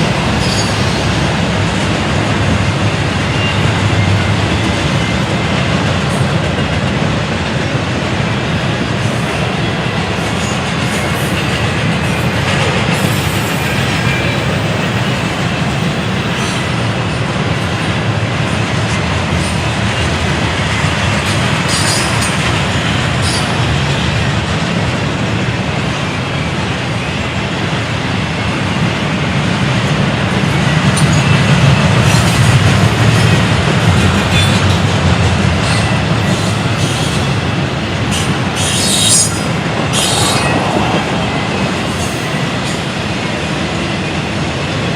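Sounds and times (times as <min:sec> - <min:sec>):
train wheel squeals: 0:00.0 - 0:01.3, 0:03.2 - 0:05.5, 0:09.2 - 0:16.9, 0:20.8 - 0:24.0, 0:35.6 - 0:37.4, 0:38.0 - 0:40.9
railroad cars rumbling: 0:00.0 - 0:44.9.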